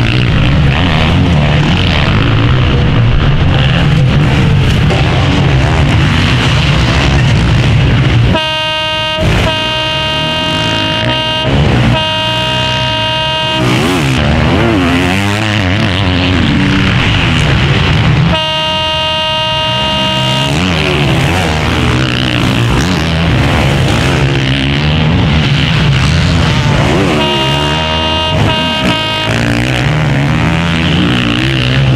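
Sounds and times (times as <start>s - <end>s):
motocross bikes revving: 0.0s - 31.9s
long horn-like tone: 8.3s - 14.2s, 18.3s - 22.4s, 26.9s - 30.4s.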